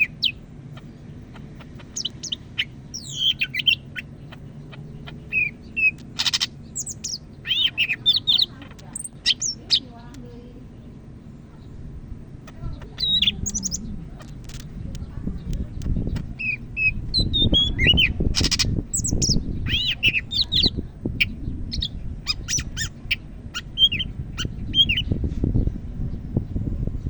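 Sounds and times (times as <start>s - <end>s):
low background rumble: 0.0s - 27.0s
bird singing whistled notes: 1.4s - 9.9s, 12.8s - 14.0s, 16.0s - 25.7s.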